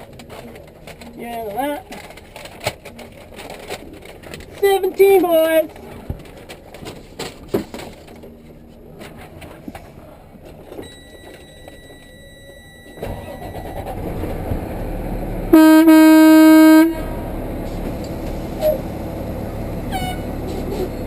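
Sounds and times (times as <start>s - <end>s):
vehicle engine rumble: 0.0s - 21.0s
vehicle horn blast: 15.5s - 17.2s, 19.9s - 20.3s.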